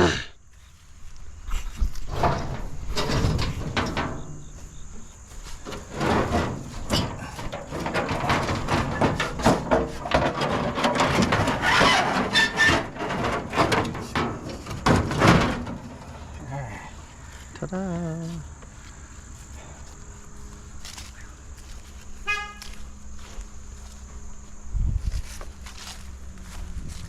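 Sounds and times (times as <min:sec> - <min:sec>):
scrap metal clanking and scraping: 0:01.5 - 0:17.4.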